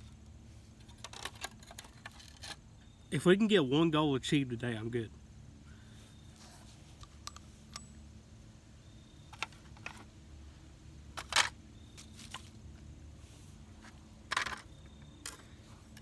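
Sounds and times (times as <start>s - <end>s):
faint steady hum: 0.0s - 16.0s
objects clicking and knocking: 0.8s - 2.6s, 11.2s - 11.6s, 13.8s - 16.0s.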